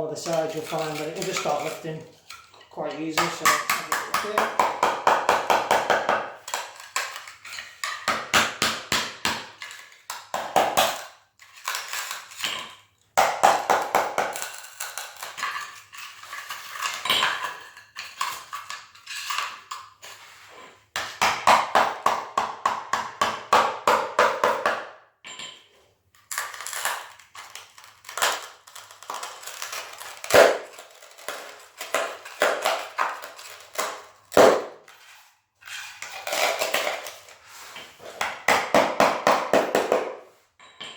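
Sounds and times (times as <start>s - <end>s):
hand tool clinking on ceramic tile: 0.2s - 4.7s, 25.2s - 25.8s, 40.6s - 40.9s.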